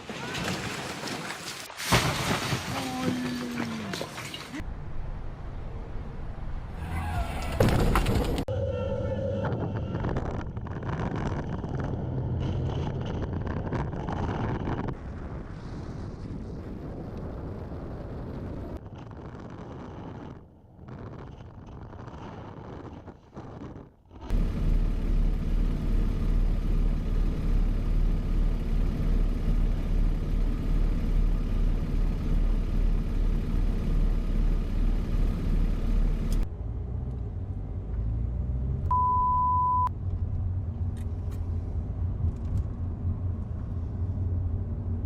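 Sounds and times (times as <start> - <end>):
vehicle engine and road noise: 3.1 - 15.1, 18.0 - 45.0
high steady beep: 38.9 - 39.9.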